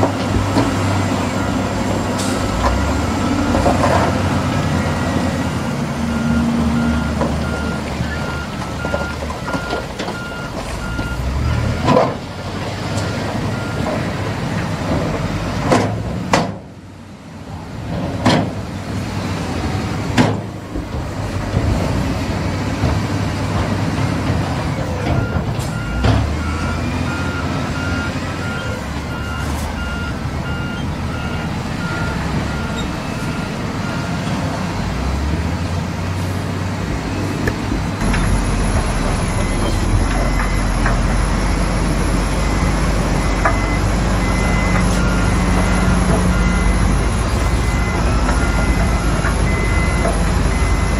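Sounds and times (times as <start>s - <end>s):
diesel truck engine running: 0.0s - 50.9s
reversing beeper: 1.4s - 11.9s, 38.0s - 50.9s.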